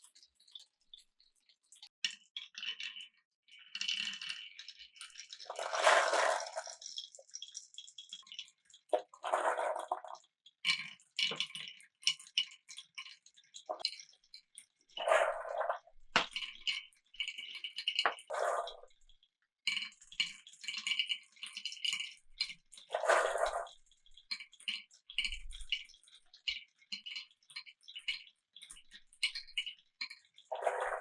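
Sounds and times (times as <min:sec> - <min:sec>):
marbles clicking on a track: 0:02.0 - 0:12.5, 0:19.7 - 0:28.2
marbles rattling clatter: 0:05.4 - 0:07.2, 0:22.9 - 0:23.7.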